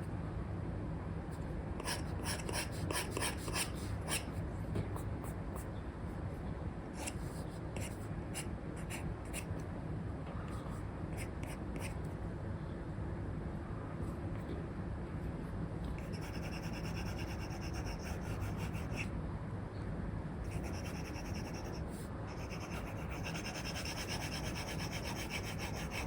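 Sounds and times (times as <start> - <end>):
steady low hum: 0.0 - 26.0
stylus scratching on screen: 16.0 - 19.1, 20.5 - 26.0.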